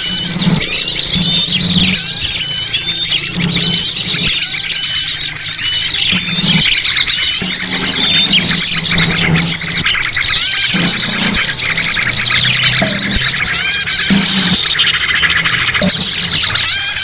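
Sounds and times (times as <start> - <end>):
many small birds chirping: 0.0 - 17.0.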